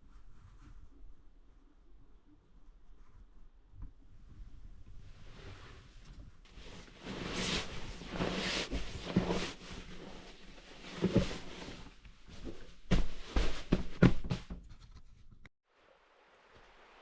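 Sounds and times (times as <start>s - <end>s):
rustling and handling noises: 6.1s - 15.5s
sharp knocks and thumps: 12.4s - 14.7s.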